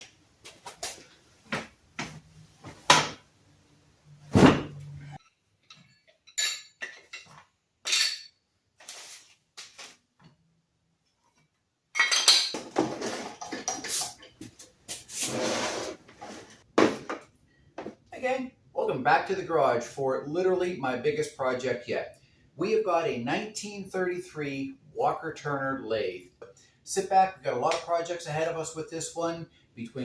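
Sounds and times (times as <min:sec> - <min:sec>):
metallic clinks and clanks: 0:05.2 - 0:08.4.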